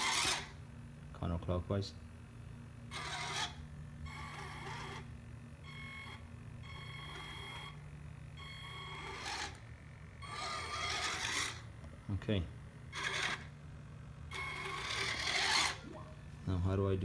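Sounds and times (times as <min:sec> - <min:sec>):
electric toy motors whining: 0:00.0 - 0:00.6, 0:02.8 - 0:11.8, 0:12.8 - 0:13.6, 0:14.3 - 0:16.0
steady low hum: 0:00.0 - 0:17.0.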